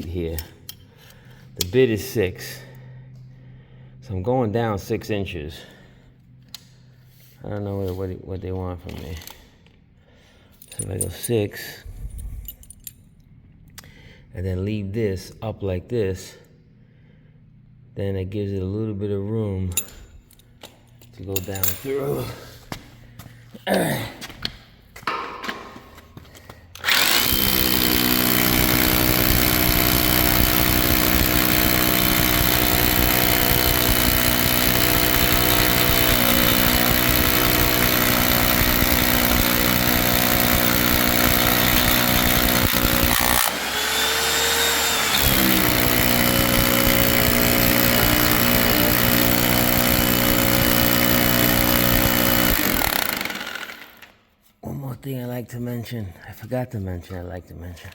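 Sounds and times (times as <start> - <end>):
hammer drill boring into concrete: 26.8 - 54.2.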